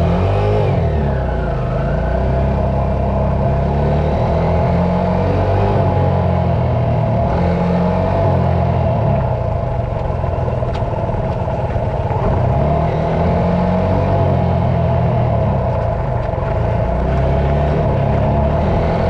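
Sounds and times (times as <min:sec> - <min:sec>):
dirt bike engine revving: 0:06.8 - 0:19.0.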